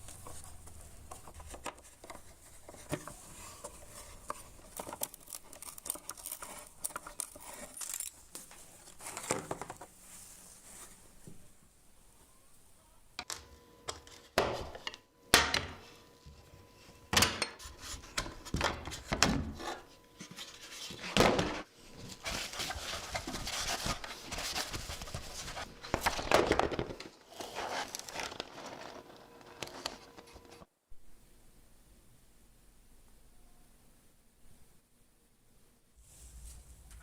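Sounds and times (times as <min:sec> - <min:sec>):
rubbing and scraping film: 0:00.0 - 0:11.0, 0:21.8 - 0:30.7.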